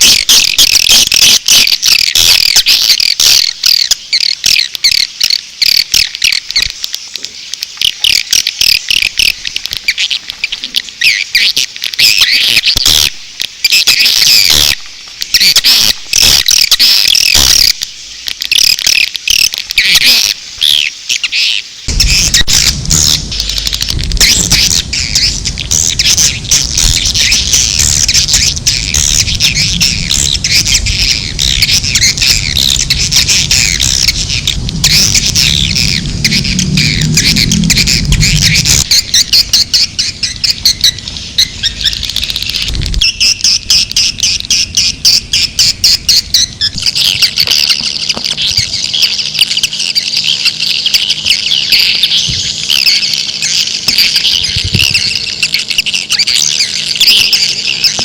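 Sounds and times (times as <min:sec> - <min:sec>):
low rumble: 0:21.9 - 0:48.9
swiftlets twittering chirps: 0:21.9 - 0:58.0.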